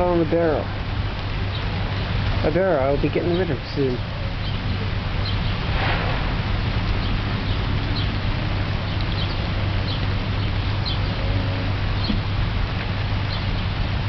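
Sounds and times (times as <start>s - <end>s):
rain splashing into water barrel: 0.0s - 14.0s
low hum: 4.0s - 14.0s.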